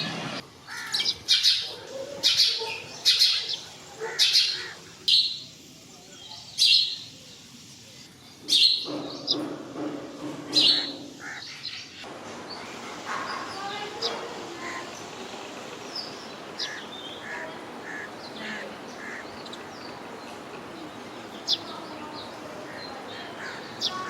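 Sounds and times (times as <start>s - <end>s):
sparrow chirping: 0.9s - 7.6s, 13.3s - 24.0s.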